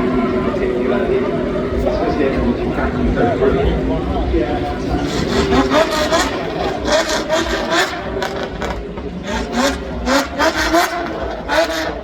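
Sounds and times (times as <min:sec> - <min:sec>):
car engine running: 0:00.0 - 0:12.0
man talking: 0:00.0 - 0:12.0.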